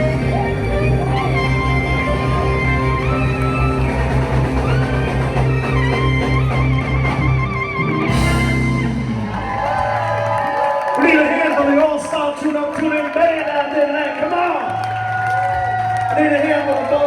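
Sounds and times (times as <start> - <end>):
drum kit: 0.0 - 10.4
electric guitar: 0.0 - 11.0
bass: 0.0 - 17.0
cymbal crash: 8.1 - 9.4.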